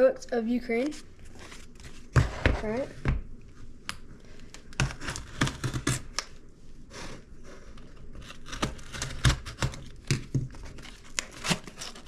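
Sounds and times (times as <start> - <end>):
box being opened by hand: 7.7 - 12.0
packaging rustling: 7.8 - 12.0.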